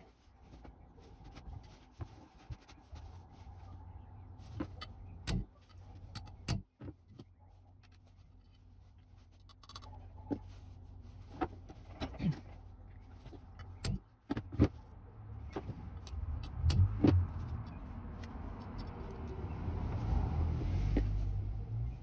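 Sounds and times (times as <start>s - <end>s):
metallic clicks and knocks: 13.5s - 14.7s.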